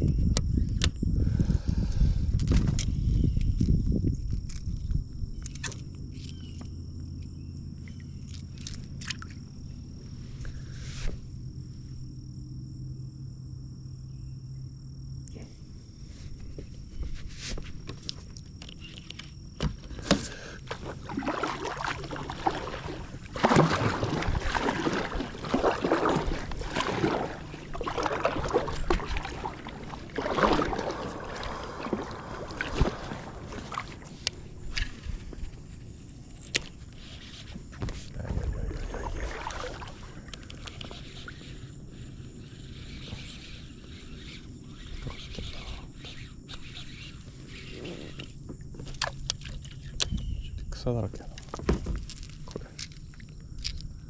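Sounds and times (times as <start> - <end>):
low steady hum: 18.3 - 37.0
paddle splashing water: 20.0 - 41.7.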